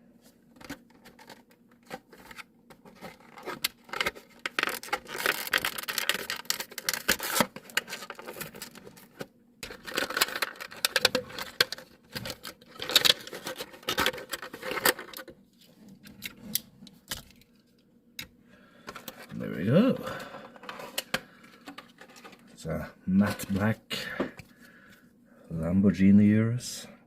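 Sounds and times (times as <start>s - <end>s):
packaging crinkling and clicking: 0.6s - 15.3s.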